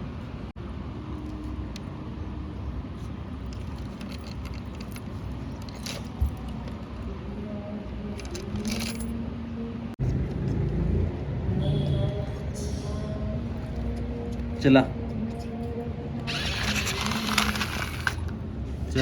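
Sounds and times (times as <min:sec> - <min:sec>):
toy tractor rattling and scraping: 0:03.0 - 0:07.1, 0:08.2 - 0:09.1, 0:16.3 - 0:19.0.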